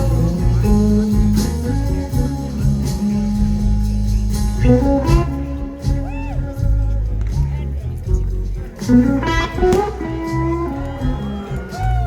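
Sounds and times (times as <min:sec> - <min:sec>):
person singing: 0:00.0 - 0:07.8
blues band playing: 0:00.0 - 0:12.0
electric guitar fill: 0:00.0 - 0:12.0.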